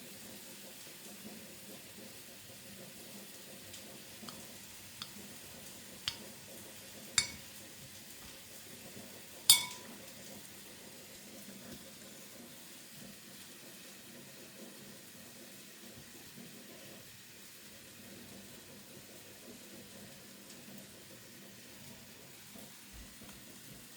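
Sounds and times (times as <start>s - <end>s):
faint sizzle: 0.0s - 23.9s
utensils clinking against dishes: 6.1s - 6.4s, 7.2s - 7.6s, 9.4s - 10.1s.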